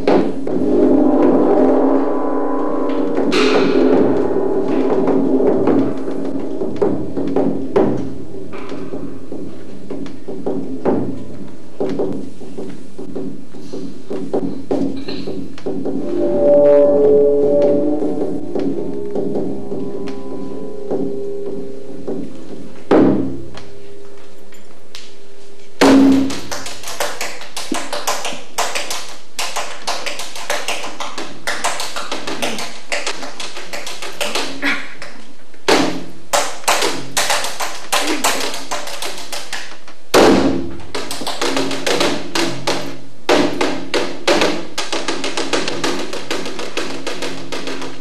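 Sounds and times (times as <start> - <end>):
faint sustained tone: 0.5 - 9.3, 15.9 - 24.8
fast percussion taps: 26.1 - 39.8, 40.9 - 48.0.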